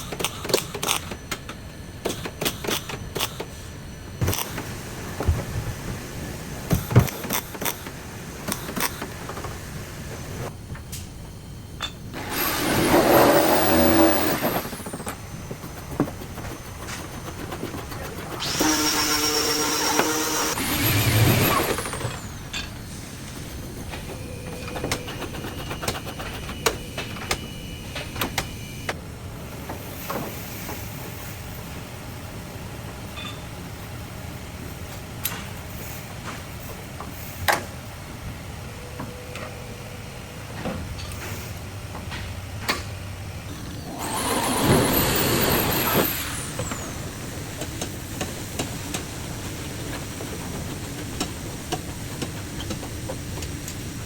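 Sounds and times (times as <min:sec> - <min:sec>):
workshop background noise: 0:00.0 - 0:54.0
scattered clicks and knocks: 0:21.9 - 0:29.0, 0:47.6 - 0:54.0.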